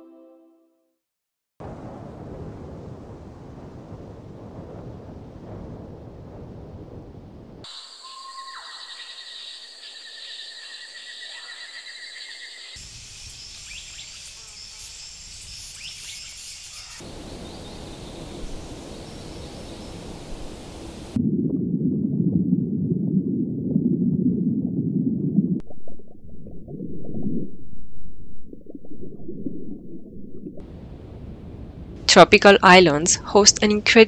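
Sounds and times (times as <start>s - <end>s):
muffled underwater rumble: 1.6s - 7.6s, 17.1s - 32.1s.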